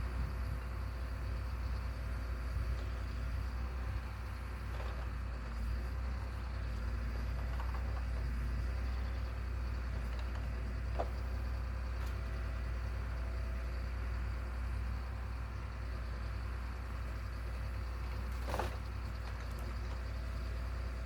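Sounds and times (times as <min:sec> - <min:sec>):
engine running low rumble: 0:00.0 - 0:21.0.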